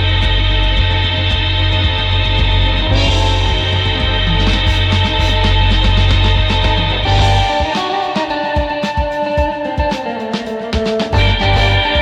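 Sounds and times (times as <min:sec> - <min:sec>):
held bass note: 0:00.0 - 0:07.7, 0:11.2 - 0:12.0
guitar-led instrumental with drums: 0:00.0 - 0:12.0.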